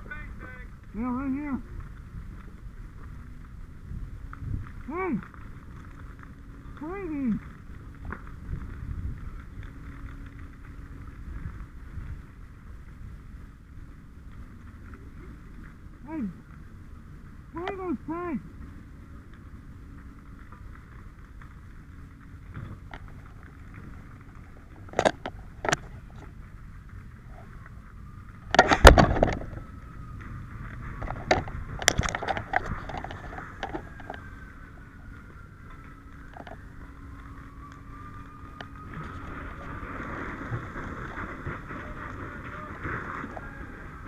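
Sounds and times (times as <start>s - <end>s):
fire burning with a hiss: 0.0s - 44.0s
sharp pops and bangs: 28.5s - 29.6s.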